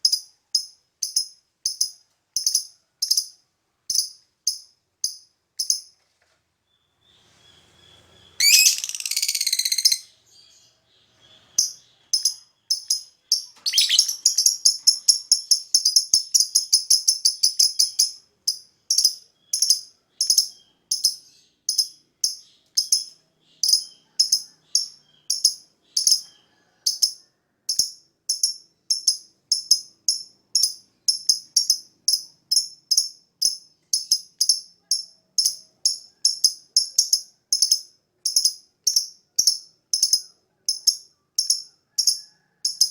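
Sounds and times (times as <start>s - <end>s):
bird high chirps: 6.7s - 26.6s
bird screechy trill: 8.3s - 10.1s, 13.6s - 14.4s.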